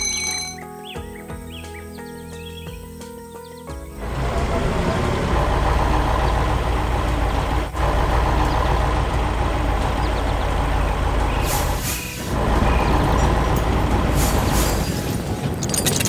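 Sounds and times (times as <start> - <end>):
heavy diesel engine running: 4.0 - 16.0.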